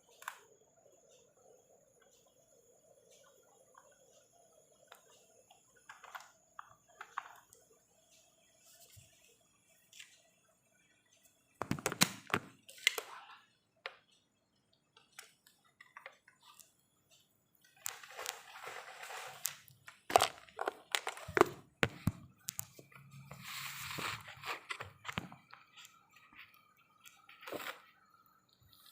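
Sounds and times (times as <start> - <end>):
rustling: 17.8 - 19.7
hissing scrape: 23.1 - 24.8.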